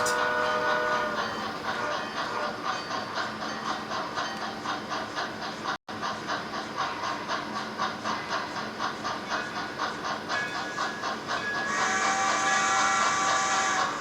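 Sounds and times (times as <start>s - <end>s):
model steam locomotive chuffing: 0.0s - 14.0s
steam hiss: 6.8s - 14.0s.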